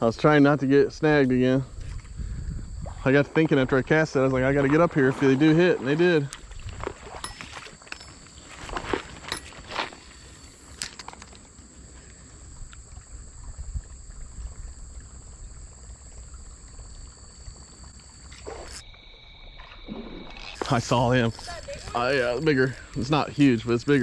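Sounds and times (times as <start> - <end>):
high-pitched whine: 0.0 - 24.0
low steady rumble: 6.3 - 18.8.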